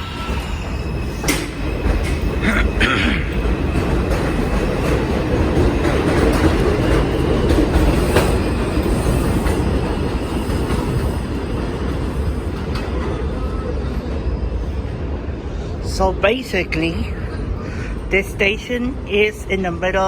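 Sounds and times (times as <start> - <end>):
subway train rumbling: 0.0 - 20.0
wheels clattering over rail joints: 1.2 - 13.5.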